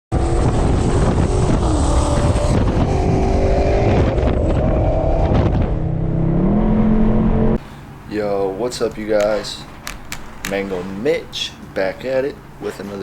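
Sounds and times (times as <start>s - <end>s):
car engine running under load: 0.1s - 7.6s.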